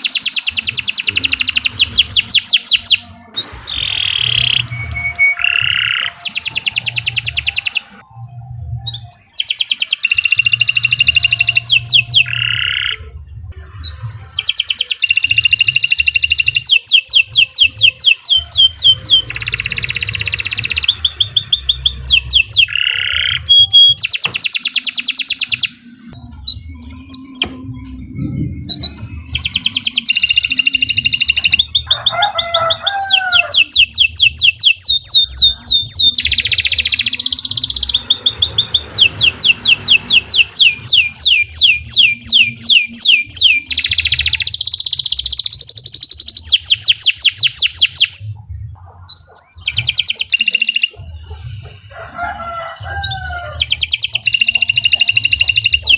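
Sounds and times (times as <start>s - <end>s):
canary singing trills: 0.0s - 55.9s.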